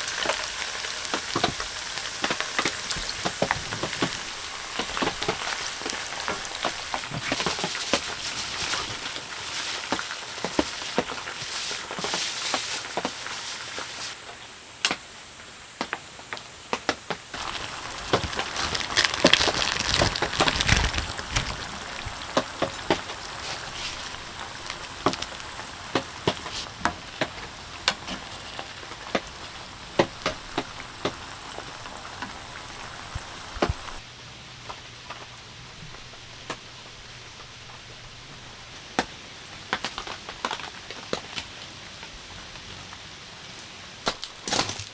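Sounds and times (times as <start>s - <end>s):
prawns sizzling in oil: 0.0s - 14.2s, 17.3s - 42.2s
steady rain: 0.0s - 44.5s
utensils tapping a pan: 17.4s - 34.0s.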